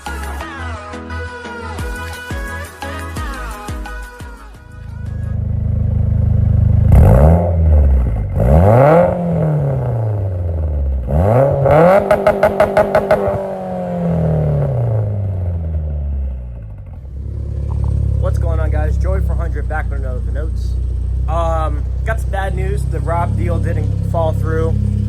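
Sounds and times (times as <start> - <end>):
car engine revving: 5.0 - 25.0.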